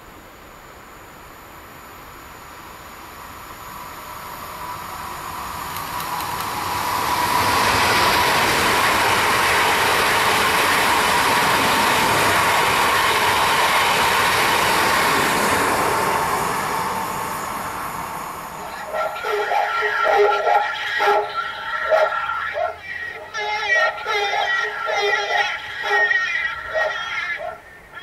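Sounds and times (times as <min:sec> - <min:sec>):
train wheel and rail noise: 0:00.0 - 0:28.0
high whine: 0:01.6 - 0:28.0.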